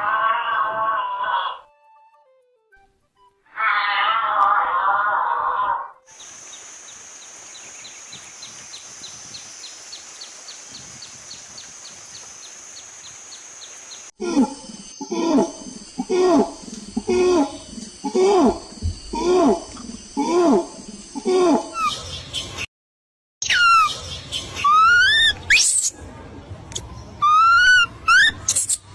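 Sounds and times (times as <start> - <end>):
animal calling with falling pitch: 0.0 - 1.7, 3.5 - 6.0, 14.2 - 22.0, 23.4 - 24.0, 24.6 - 25.6, 27.2 - 28.5.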